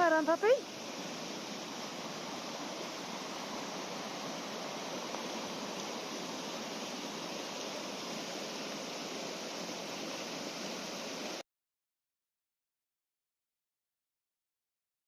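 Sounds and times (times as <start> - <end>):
river water rushing: 0.0 - 11.4.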